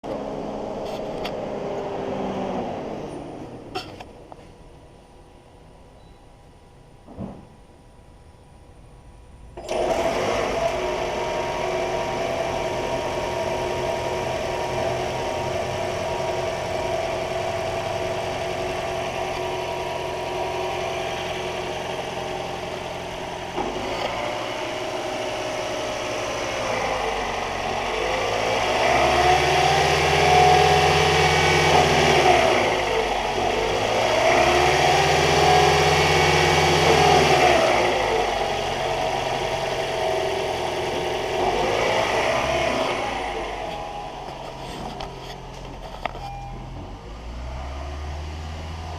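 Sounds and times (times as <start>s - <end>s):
car engine starting and running: 0.0s - 4.6s, 9.5s - 48.9s
car engine revving: 9.6s - 46.1s, 46.8s - 48.9s.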